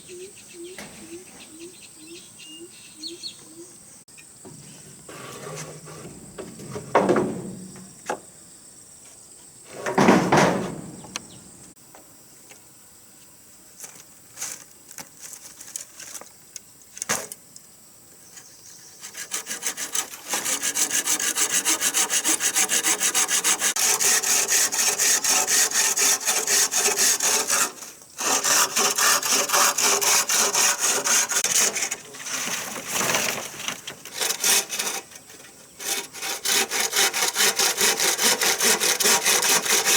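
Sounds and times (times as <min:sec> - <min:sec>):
dull thuds: 0:05.8 - 0:08.3, 0:09.7 - 0:11.7
saw cutting through wood: 0:19.0 - 0:33.4, 0:34.0 - 0:39.9.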